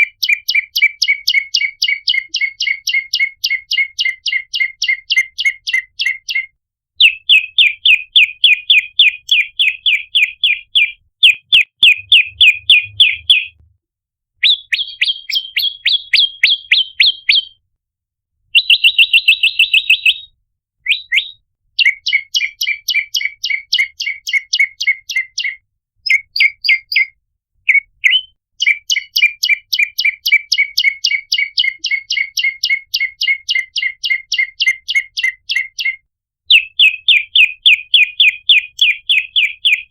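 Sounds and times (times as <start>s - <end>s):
bird chirping rapidly: 0.0s - 13.6s, 14.4s - 17.6s, 18.6s - 20.3s, 20.9s - 39.9s.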